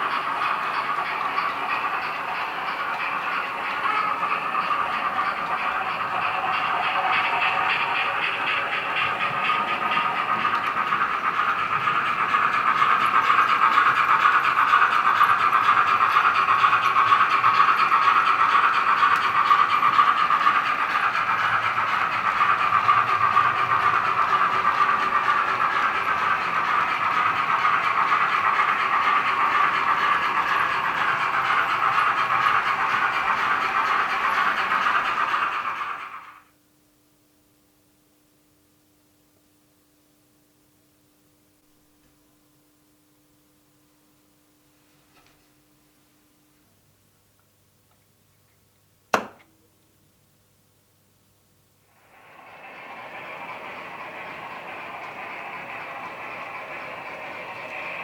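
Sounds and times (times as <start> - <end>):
model steam locomotive chuffing: 0.0 - 36.6, 51.9 - 58.0
steam hiss: 51.9 - 58.0.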